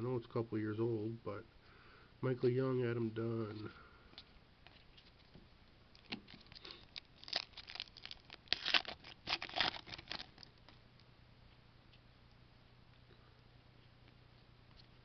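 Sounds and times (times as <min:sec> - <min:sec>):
card pack wrapper tearing and crinkling: 0:06.0 - 0:10.7.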